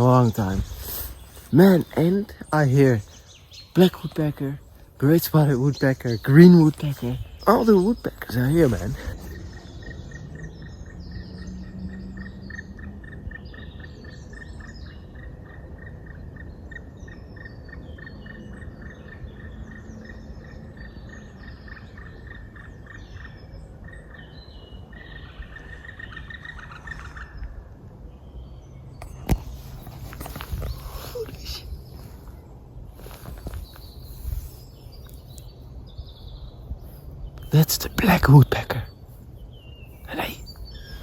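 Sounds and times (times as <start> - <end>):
birds singing and calling: 0.0 - 41.0.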